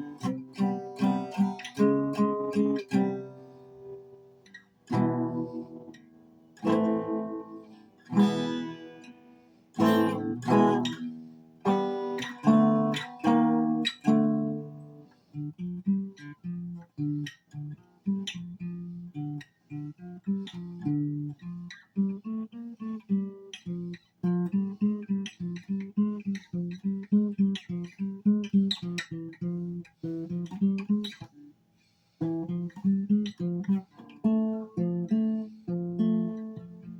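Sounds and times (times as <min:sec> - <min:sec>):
solo guitar playing: 0:00.0 - 0:31.5, 0:32.2 - 0:36.9.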